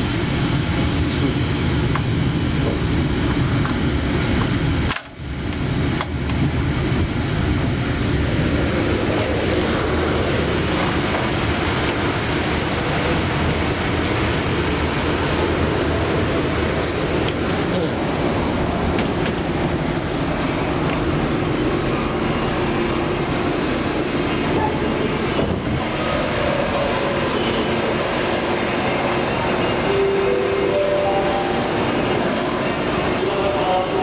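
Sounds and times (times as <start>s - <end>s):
train rumbling: 0.0s - 34.0s.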